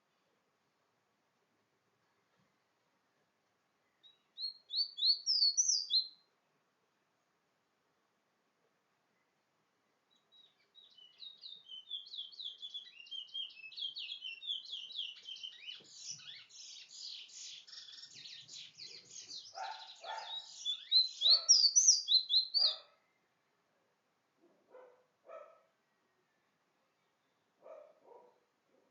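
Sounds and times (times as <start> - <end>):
songbird chirping and trilling: 3.8 - 6.4, 9.1 - 23.7
lower-pitched bird calls: 3.9 - 6.3, 10.3 - 23.2.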